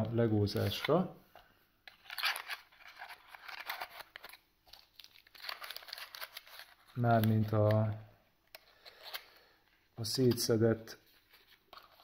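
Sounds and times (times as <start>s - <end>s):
packaging rustling and crinkling: 1.9s - 7.9s.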